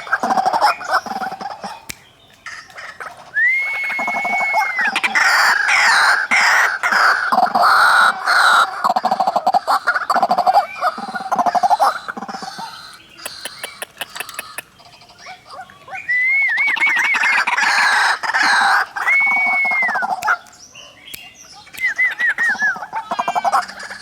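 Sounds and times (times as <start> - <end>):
waterhens harsh croaking calls: 0.0 - 15.4, 16.7 - 20.4, 22.4 - 24.0
wavering whistled bird trill: 3.4 - 5.2, 15.9 - 17.8, 18.7 - 20.4, 21.2 - 23.4.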